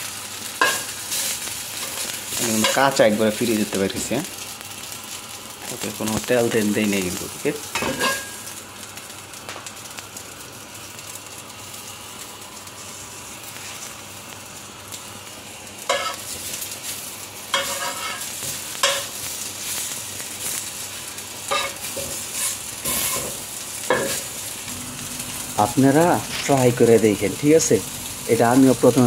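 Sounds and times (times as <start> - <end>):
fish sizzling in a pan: 0.0 - 29.0
spatula scraping and knocking pan: 17.5 - 18.2, 21.5 - 24.3.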